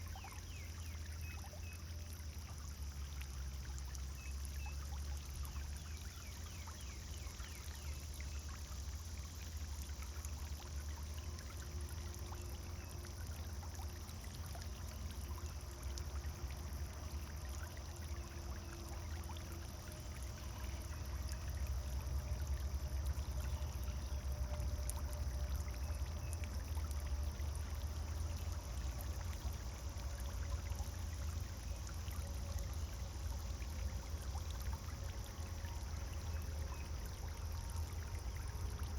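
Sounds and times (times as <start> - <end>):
fountain splashing into water: 0.0 - 38.9.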